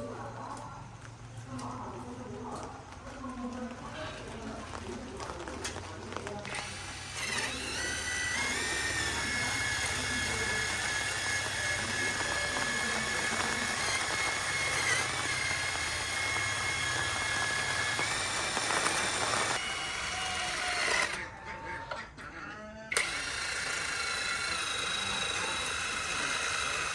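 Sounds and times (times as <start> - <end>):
power tool whining: 4.8 - 21.4, 22.9 - 26.9.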